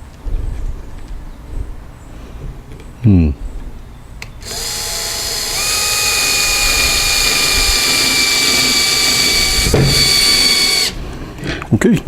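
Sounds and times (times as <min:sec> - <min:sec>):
electric screw gun whining: 0:04.4 - 0:11.0.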